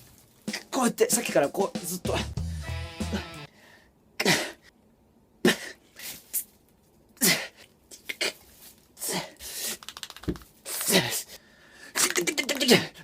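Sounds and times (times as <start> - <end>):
man grunting and huffing: 2.2 - 3.5, 4.2 - 4.7, 7.2 - 8.4, 9.0 - 9.6, 10.7 - 13.0.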